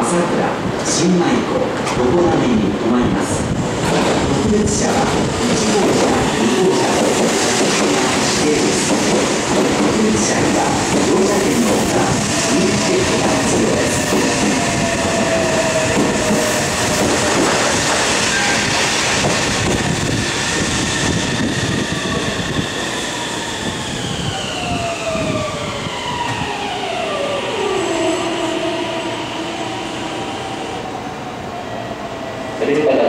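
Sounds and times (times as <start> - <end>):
train wheels clattering over rails: 3.8 - 23.4.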